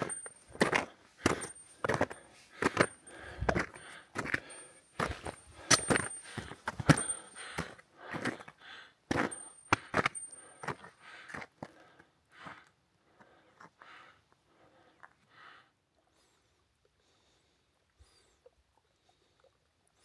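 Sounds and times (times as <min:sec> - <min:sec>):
small metallic clinks: 0:00.0 - 0:03.3, 0:09.1 - 0:11.0.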